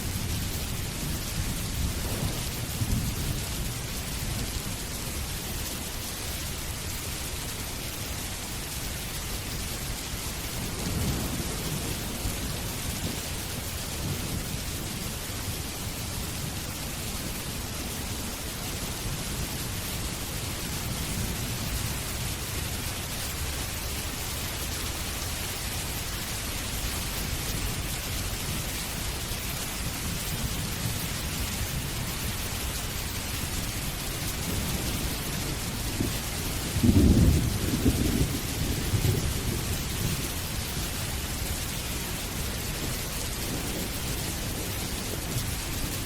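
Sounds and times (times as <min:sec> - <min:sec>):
thunder rumbling: 0:00.0 - 0:05.4, 0:10.4 - 0:18.4, 0:25.8 - 0:46.0
steady rain falling: 0:00.0 - 0:46.0.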